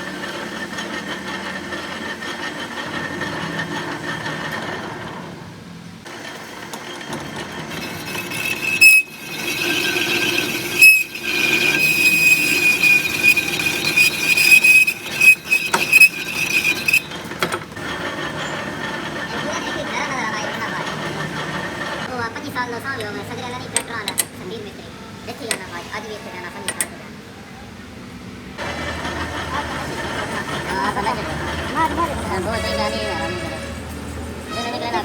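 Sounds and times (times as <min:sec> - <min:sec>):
dull mechanical noise: 0:00.0 - 0:35.0
high-pitched metallic squeal: 0:06.9 - 0:17.3, 0:28.6 - 0:35.0.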